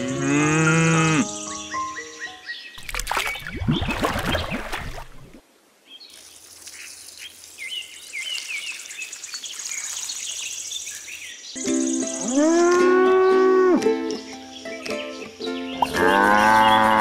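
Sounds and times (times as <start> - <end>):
cow mooing: 0.0 - 1.2, 15.9 - 17.0
small birds chirping: 1.0 - 17.0.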